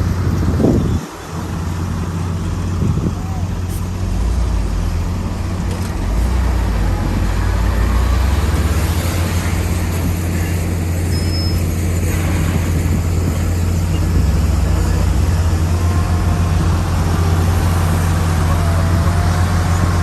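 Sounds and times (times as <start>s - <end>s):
bulldozer diesel engine droning: 0.0s - 20.0s.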